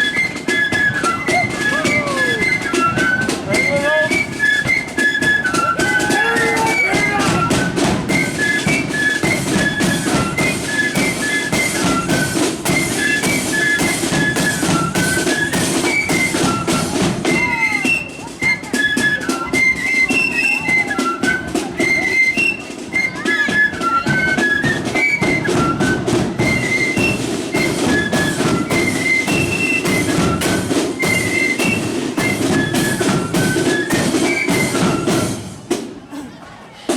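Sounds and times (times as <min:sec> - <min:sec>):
snare and bass drumming: 0:00.0 - 0:18.3, 0:24.1 - 0:36.0
flutes playing quick melody: 0:00.0 - 0:35.9.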